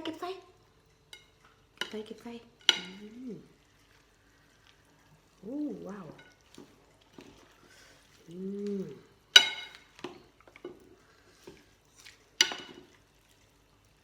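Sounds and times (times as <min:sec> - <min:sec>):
person humming mm: 0:08.2 - 0:09.1
utensil clinking against bowl: 0:09.3 - 0:10.7.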